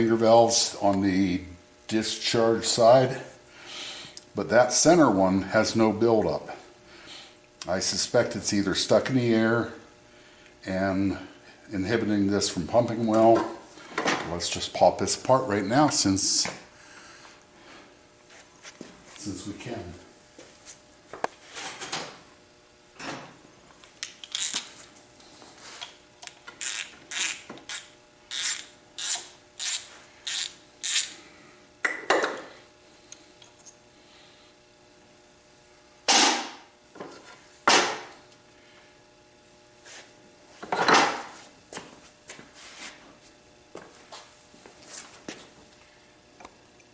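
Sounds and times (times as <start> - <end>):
hand tools working metal: 26.5 - 31.2.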